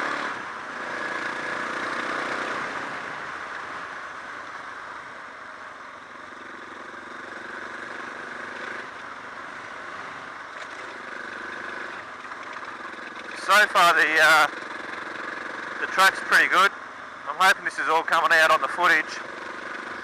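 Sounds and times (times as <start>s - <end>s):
motorcycle engine running: 5.9s - 20.0s.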